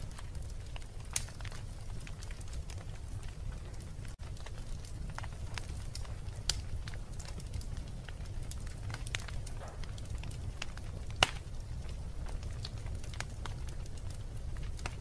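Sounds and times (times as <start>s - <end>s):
wood fire crackling: 0.0s - 15.0s
sharp loud snap of fire: 9.0s - 11.6s.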